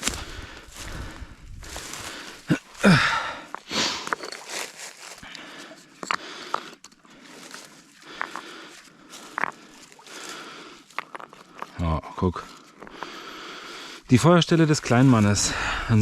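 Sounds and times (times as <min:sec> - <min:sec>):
footsteps crunching through undergrowth: 0:00.0 - 0:02.8, 0:03.5 - 0:05.7, 0:07.2 - 0:11.5
stones knocking: 0:08.1 - 0:08.6, 0:09.2 - 0:09.8, 0:10.9 - 0:11.8, 0:12.8 - 0:13.2.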